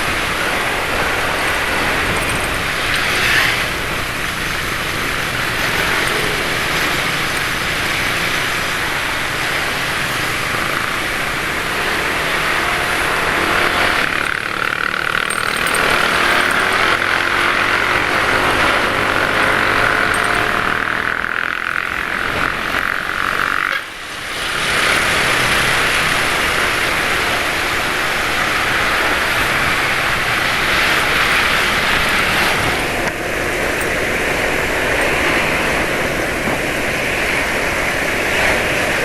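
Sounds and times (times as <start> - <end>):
motorbike traffic: 0.0 - 39.0.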